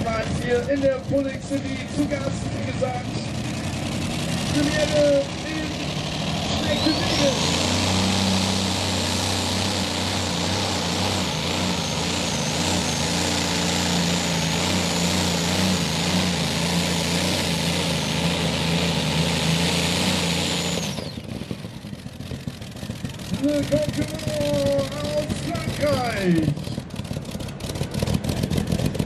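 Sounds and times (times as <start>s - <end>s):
high whine: 0.0s - 21.6s
tractor engine under load: 0.0s - 29.0s.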